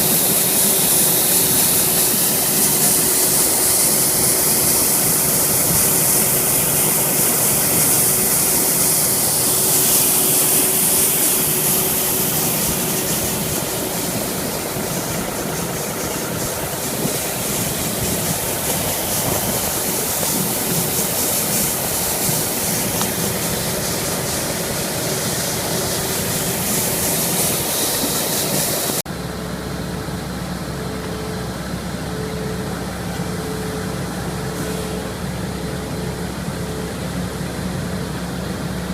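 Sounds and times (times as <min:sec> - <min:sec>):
loud high hiss: 0:00.0 - 0:29.6
truck engine running: 0:00.0 - 0:38.9.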